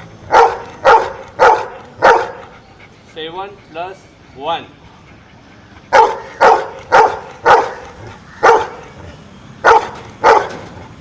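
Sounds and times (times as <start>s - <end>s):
dog barking: 0.3s - 2.5s, 5.9s - 8.8s, 9.6s - 10.6s.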